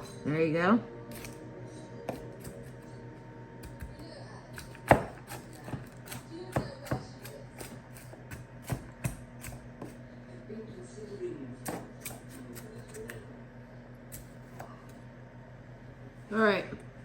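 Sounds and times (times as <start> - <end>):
knife chopping potatoes: 2.1 - 2.8, 3.6 - 10.0, 11.6 - 13.2.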